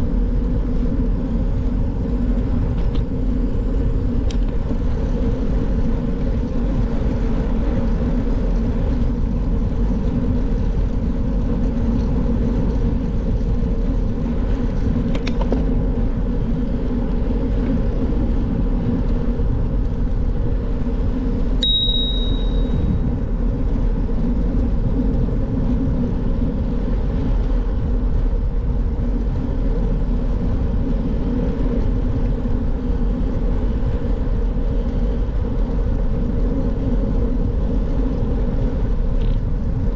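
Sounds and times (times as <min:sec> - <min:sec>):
wind and road noise: 0:00.0 - 0:39.9
sudden high ring: 0:21.6 - 0:22.9.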